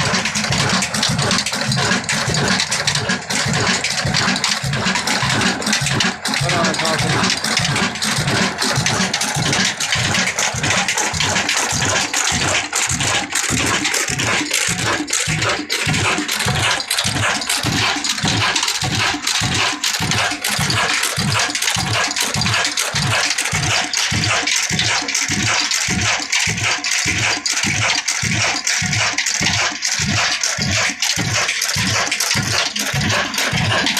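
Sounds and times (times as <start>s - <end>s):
stationary diesel engine thudding: 0.0s - 24.3s.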